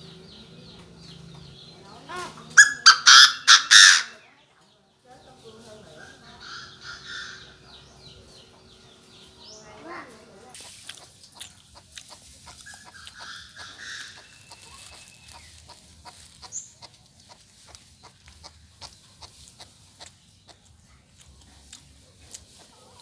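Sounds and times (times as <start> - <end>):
high bird chirp: 0.0 - 4.3, 5.2 - 10.4, 12.5 - 16.8
francolin clucking: 0.0 - 4.4, 5.2 - 23.0.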